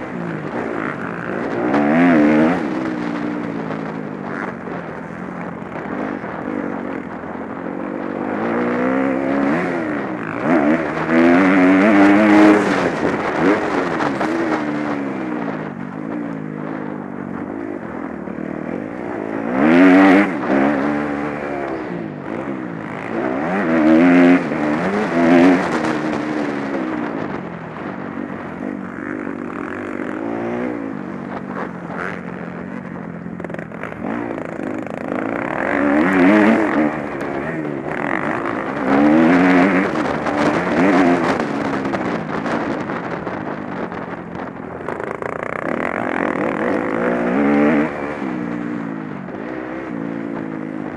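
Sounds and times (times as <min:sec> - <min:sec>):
motorcycle engines revving past: 0:00.0 - 0:50.9.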